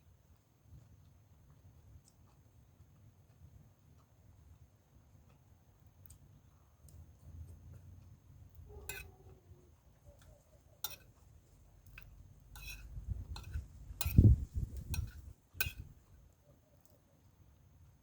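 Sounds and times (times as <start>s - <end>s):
spoon clinking against plate: 8.9s - 9.1s, 10.8s - 11.2s, 11.9s - 16.0s.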